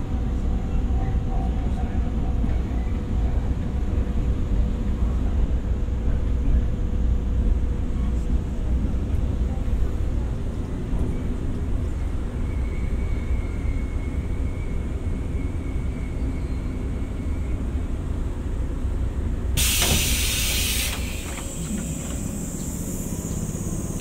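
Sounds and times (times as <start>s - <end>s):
electric train rumbling: 0.0s - 24.0s
compressed-air hiss: 19.6s - 24.0s.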